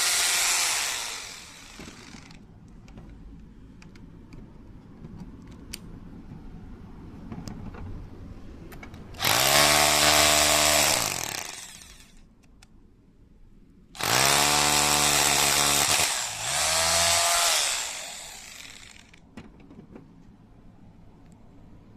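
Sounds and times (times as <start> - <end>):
rotary hammer motor spinning: 0.0 - 2.4, 9.2 - 12.2, 14.0 - 19.2.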